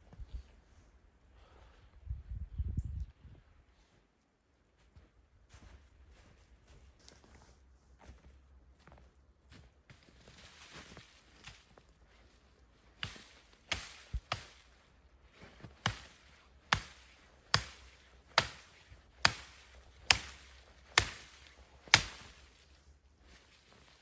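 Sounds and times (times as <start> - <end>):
axe chopping wood: 13.0 - 14.8, 15.7 - 22.7.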